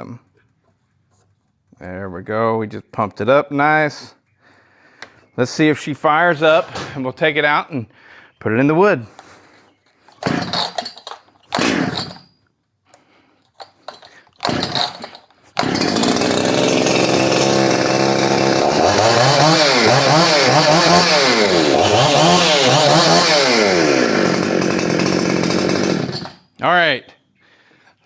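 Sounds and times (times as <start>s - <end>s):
chainsaw engine revving: 6.3s - 7.0s, 10.1s - 12.3s, 13.6s - 26.4s
starter cord yanks: 6.3s - 7.0s, 9.1s - 12.3s, 12.9s - 26.4s.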